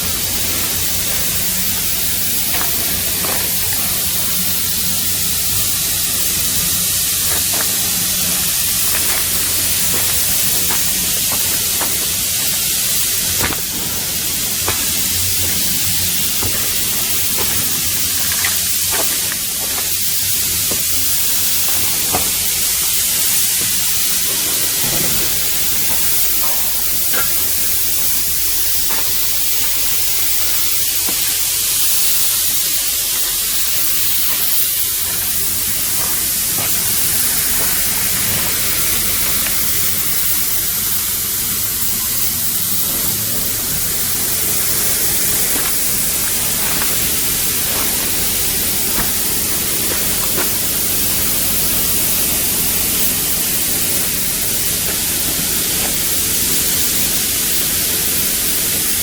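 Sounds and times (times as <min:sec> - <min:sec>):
loud steady hiss: 0:00.0 - 0:59.0.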